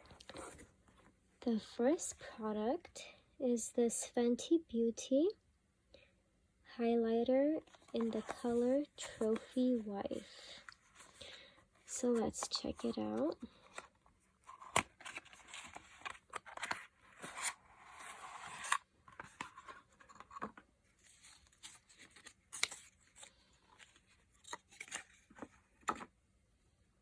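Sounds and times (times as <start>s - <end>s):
box rustling and scraping: 7.6s - 26.1s.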